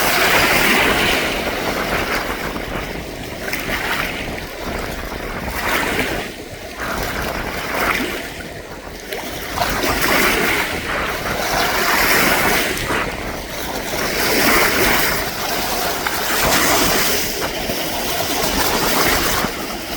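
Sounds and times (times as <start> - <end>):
strong wind blowing in gusts: 0.0 - 19.9.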